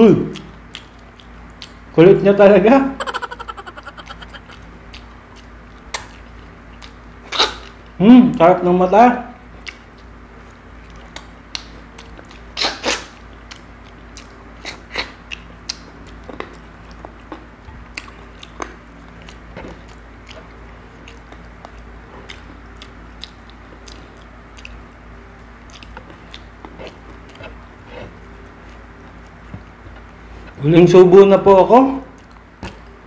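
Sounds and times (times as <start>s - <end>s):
man chewing: 3.0s - 5.1s, 13.5s - 24.9s, 25.6s - 29.6s.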